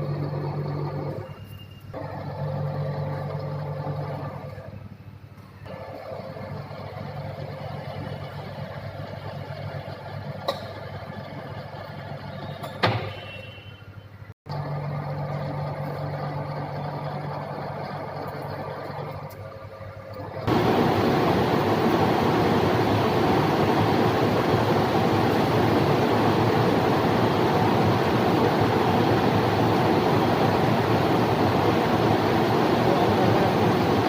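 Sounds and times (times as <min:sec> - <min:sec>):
lathe machine hum: 0:20.2 - 0:34.0.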